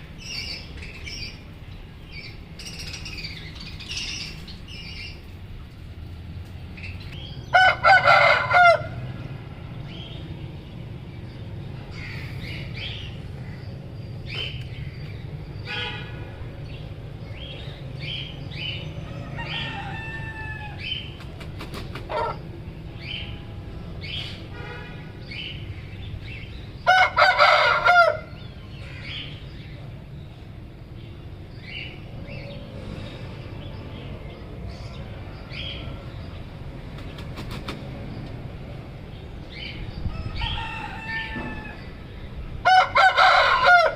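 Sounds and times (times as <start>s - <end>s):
rooster crowing: 7.5s - 9.0s, 19.0s - 20.9s, 26.9s - 28.3s, 40.1s - 42.0s, 42.6s - 43.9s.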